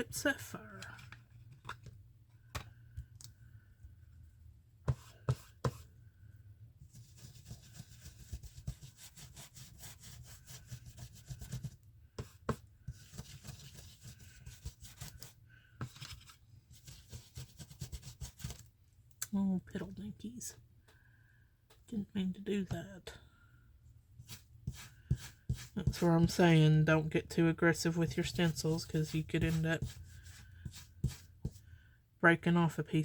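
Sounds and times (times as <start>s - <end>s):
brush scratching on stencil: 4.9s - 5.9s, 6.8s - 18.7s, 24.2s - 26.5s, 27.8s - 31.7s.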